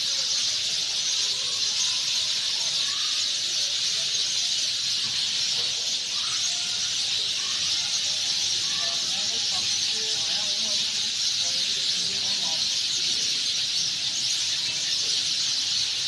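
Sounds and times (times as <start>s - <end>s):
sparrows chirping: 0.0s - 16.0s.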